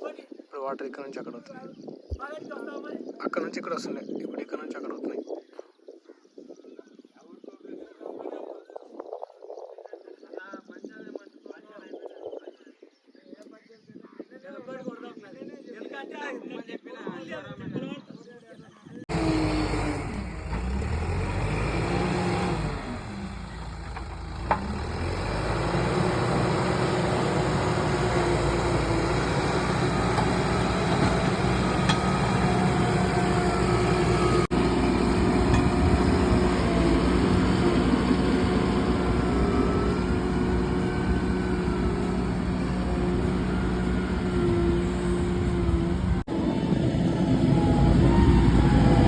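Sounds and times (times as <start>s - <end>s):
heavy machine diesel engine: 19.1s - 49.0s.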